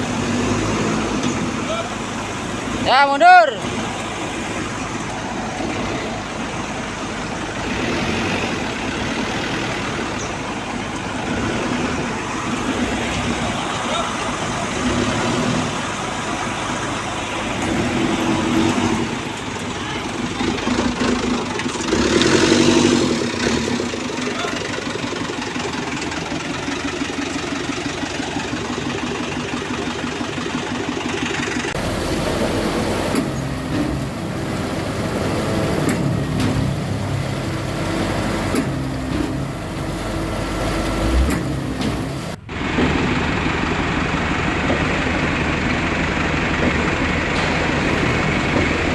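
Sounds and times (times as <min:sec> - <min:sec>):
truck engine running: 0:00.0 - 0:48.9.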